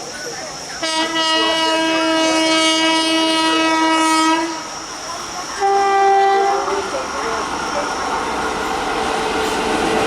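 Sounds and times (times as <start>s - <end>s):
locomotive air horn blasts: 0.8s - 4.7s, 5.6s - 6.7s.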